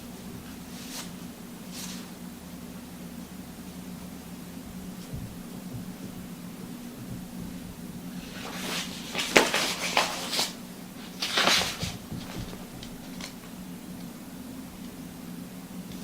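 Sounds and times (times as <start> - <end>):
steady low hum: 0.0 - 16.0
handling rustles: 0.2 - 2.2, 4.7 - 14.1.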